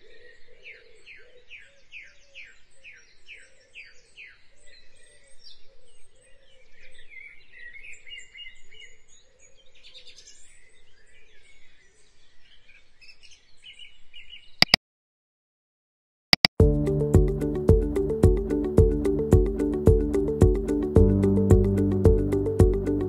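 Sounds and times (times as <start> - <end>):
birds chirping and trilling: 0.0 - 14.6
sharp clicks: 16.4 - 16.6.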